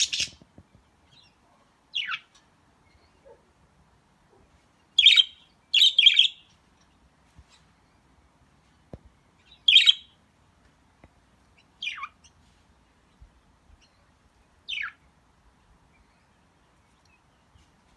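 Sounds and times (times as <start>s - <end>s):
budgerigars chirping: 0.0s - 0.4s, 2.0s - 2.3s, 5.0s - 6.4s, 9.5s - 10.1s, 11.6s - 12.3s, 14.7s - 15.0s.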